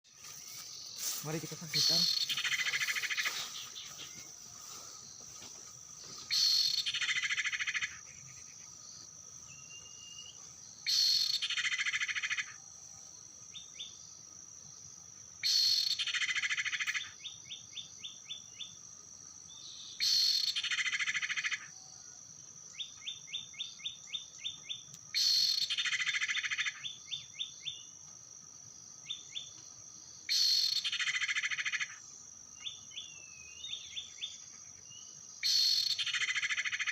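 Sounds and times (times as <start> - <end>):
high insect drone: 0.1 - 36.9
bird call phrase: 1.0 - 3.4.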